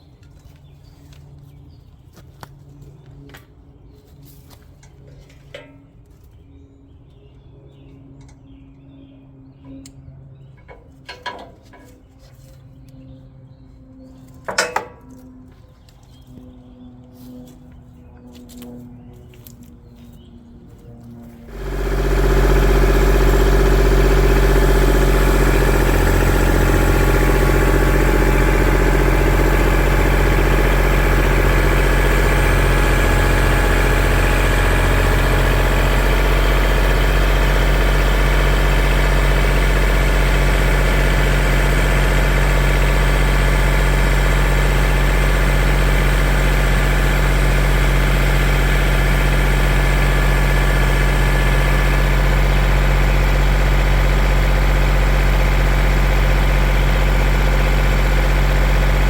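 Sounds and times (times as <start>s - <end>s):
engine idling: 21.5s - 59.0s.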